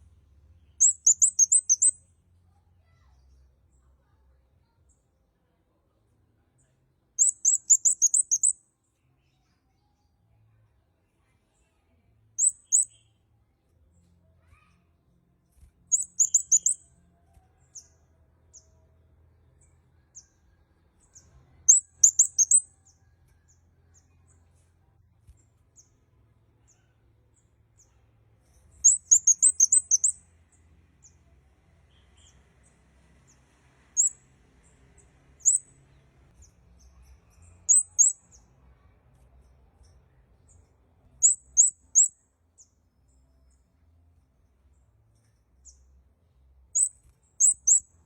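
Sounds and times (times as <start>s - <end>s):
bird chirping high thin notes: 0.8s - 2.0s, 7.2s - 8.5s, 15.9s - 16.8s, 21.7s - 22.6s, 28.9s - 30.2s.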